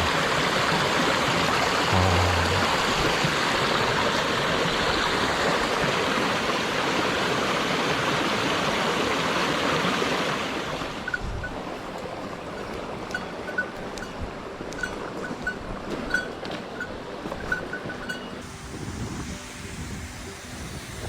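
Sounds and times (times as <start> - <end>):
mountain stream rushing: 0.0 - 13.6.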